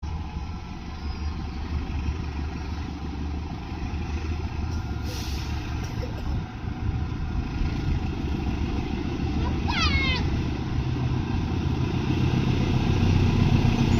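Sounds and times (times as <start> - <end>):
train rumbling: 0.0 - 13.9
short hiss: 5.0 - 5.9.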